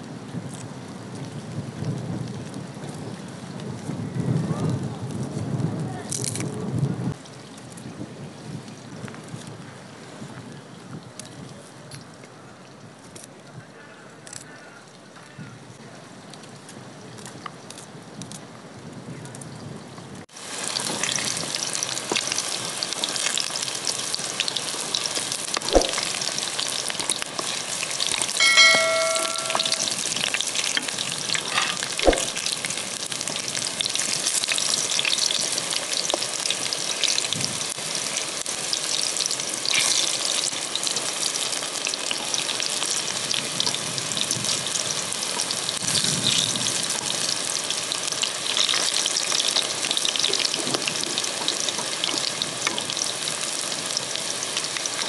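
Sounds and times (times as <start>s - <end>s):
eggplant sizzling in hot oil: 20.2s - 55.0s
fork clinking against pan: 28.4s - 30.0s.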